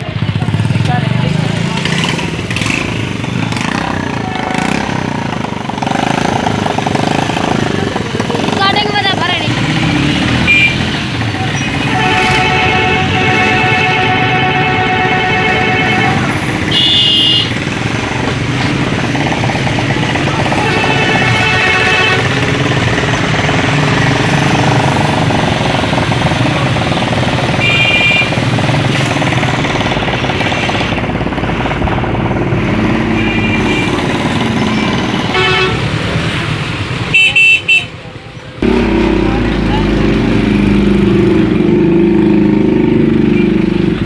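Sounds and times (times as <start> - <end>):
passing vehicles: 0.0 - 44.0
car horn honks: 3.6 - 5.2, 10.3 - 17.8, 20.1 - 23.0, 27.4 - 28.6, 33.0 - 36.0, 37.0 - 38.0.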